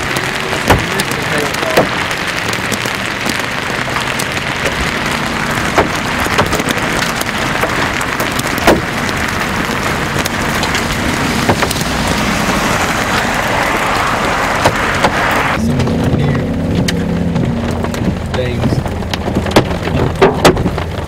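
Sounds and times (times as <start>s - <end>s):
heavy rain hiss: 0.0s - 20.0s
hailstones knocking hard surface: 0.0s - 21.0s.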